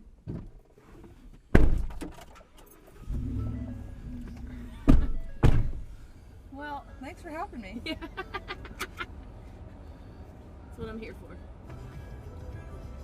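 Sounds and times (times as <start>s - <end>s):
heavy thunks: 0.0s - 2.2s, 3.1s - 6.0s
music: 10.6s - 13.0s.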